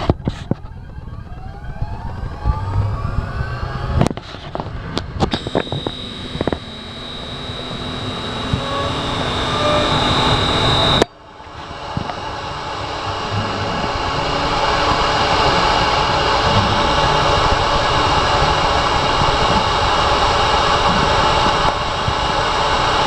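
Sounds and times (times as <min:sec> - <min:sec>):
router spindle motor whining: 0:00.0 - 0:23.0
sharp clicks: 0:04.0 - 0:11.1.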